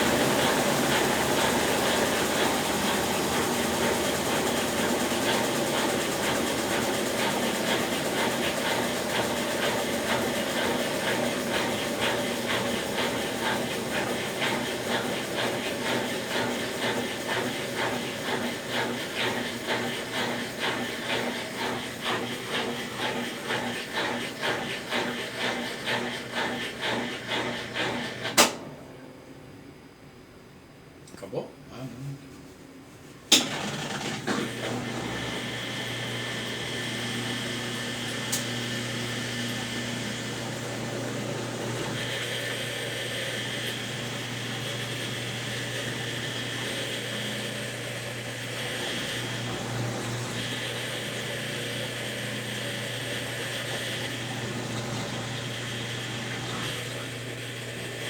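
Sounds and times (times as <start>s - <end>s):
washing machine churning: 0.0s - 29.7s, 33.3s - 58.0s
washing machine click: 33.3s - 34.5s.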